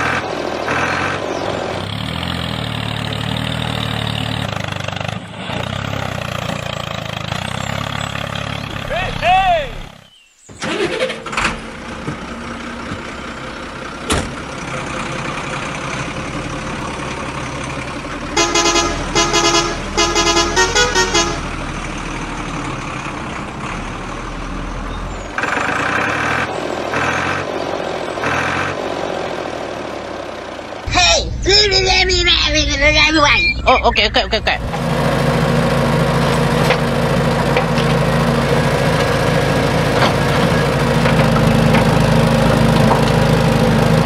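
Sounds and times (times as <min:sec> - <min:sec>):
truck engine running: 0:00.0 - 0:44.0
long soft horn tones: 0:18.3 - 0:21.6
quick horn honks: 0:18.4 - 0:21.5.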